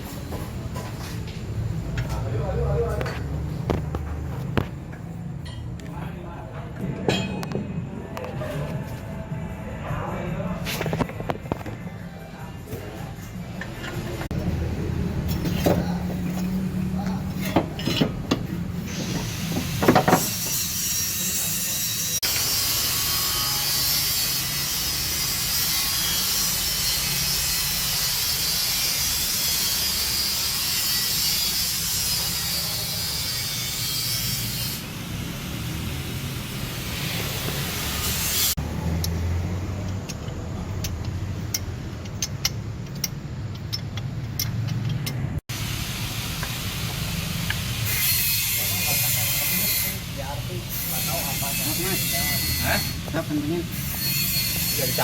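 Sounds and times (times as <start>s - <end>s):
rasping hiss of metal work: 17.2s - 38.6s, 45.5s - 55.0s.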